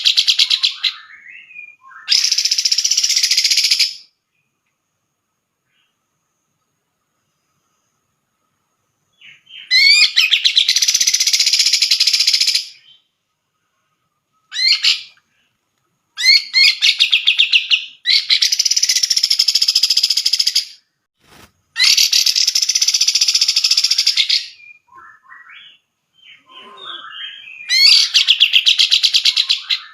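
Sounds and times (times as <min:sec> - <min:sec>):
bird chattering song: 0:00.0 - 0:04.1, 0:09.2 - 0:13.1, 0:16.2 - 0:20.8, 0:21.8 - 0:29.9.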